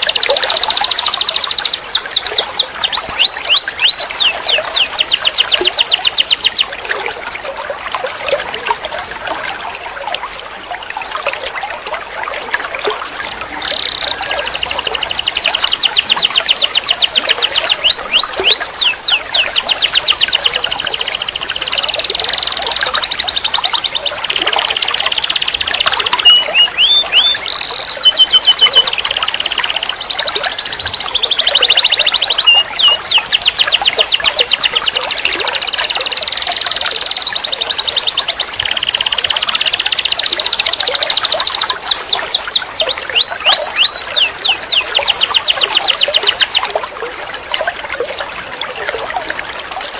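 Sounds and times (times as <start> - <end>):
canary singing: 0.0 - 6.7, 13.6 - 46.7.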